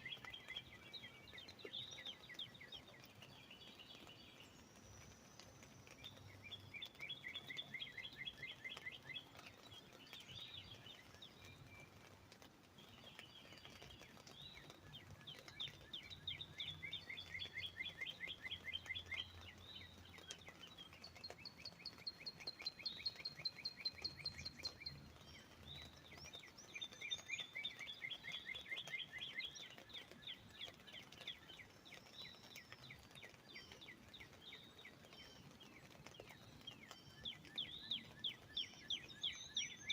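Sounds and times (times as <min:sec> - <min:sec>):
faint background hiss: 0:00.0 - 0:39.9
bird singing repeated notes: 0:13.9 - 0:39.9.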